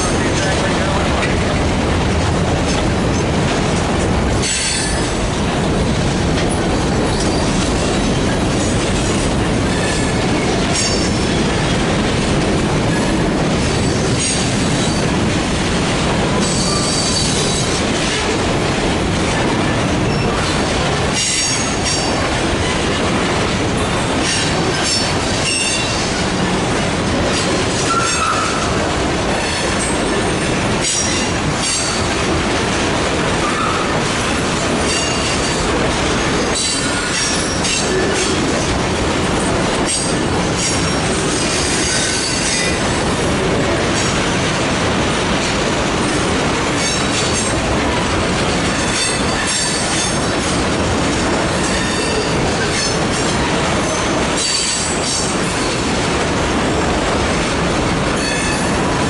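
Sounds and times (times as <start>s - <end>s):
freight train rumbling past: 0.0s - 59.0s
wheels clacking over rail joints: 0.0s - 59.0s.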